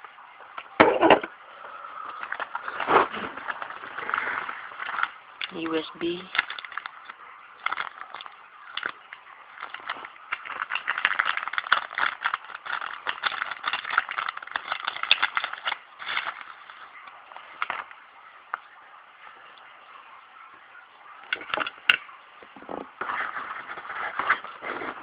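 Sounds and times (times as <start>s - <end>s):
packaging crinkling and rattling: 2.1s - 18.0s, 21.3s - 22.0s.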